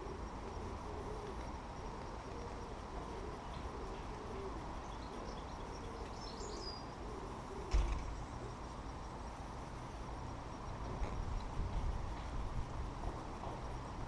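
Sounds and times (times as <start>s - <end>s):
low bird calls: 0.0s - 8.6s.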